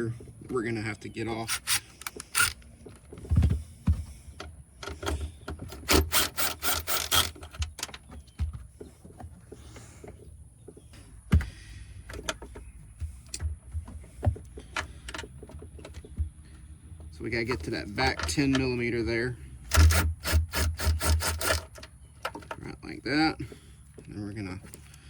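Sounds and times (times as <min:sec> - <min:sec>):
socket wrench clicking: 0:01.5 - 0:02.7
small knocks and handling noise: 0:07.0 - 0:18.9, 0:21.4 - 0:22.7.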